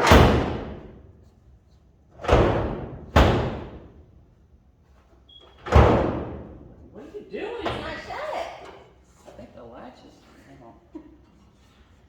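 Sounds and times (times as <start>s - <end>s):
truck door slamming: 0.0s - 0.9s, 2.2s - 3.9s, 5.7s - 6.6s.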